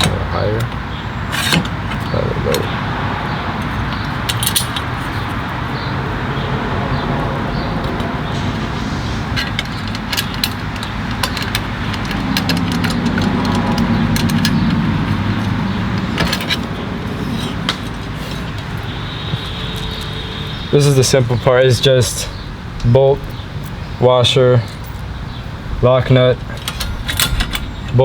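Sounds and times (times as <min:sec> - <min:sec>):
metal hardware clicking and clinking: 0:00.0 - 0:02.8, 0:03.5 - 0:05.6, 0:09.4 - 0:21.2, 0:26.4 - 0:28.0
low outdoor rumble: 0:00.0 - 0:28.0.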